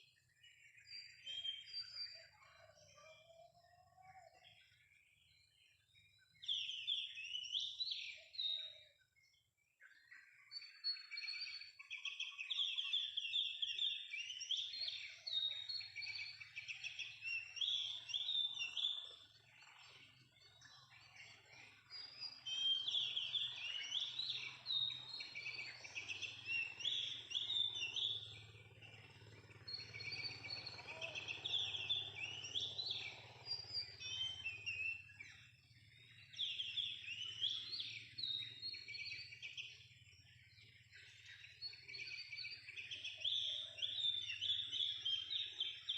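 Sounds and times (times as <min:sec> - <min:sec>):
bird chirping and trilling: 0:09.9 - 0:45.9.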